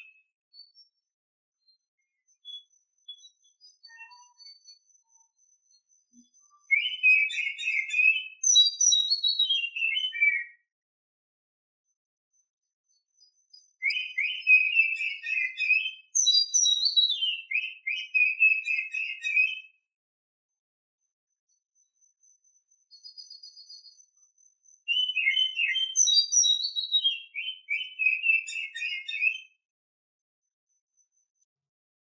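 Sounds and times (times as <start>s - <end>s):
magpie-robin whistled song: 0.0s - 1.0s, 1.7s - 10.7s, 12.9s - 19.8s, 22.4s - 29.6s.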